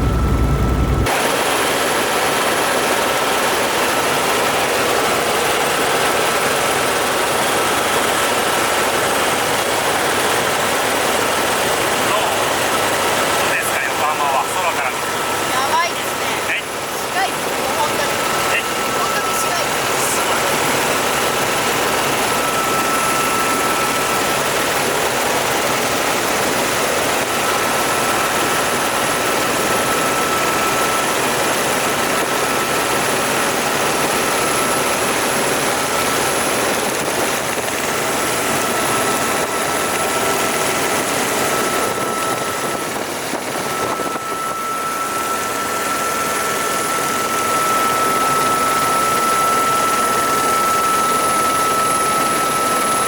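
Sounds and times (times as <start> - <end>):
high whine: 0.0 - 1.3
helicopter rotor and engine: 0.0 - 53.0.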